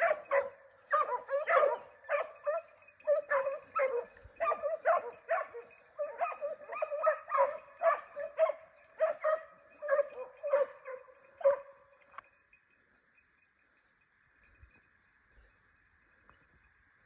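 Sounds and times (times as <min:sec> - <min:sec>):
hound baying: 0:00.0 - 0:11.8.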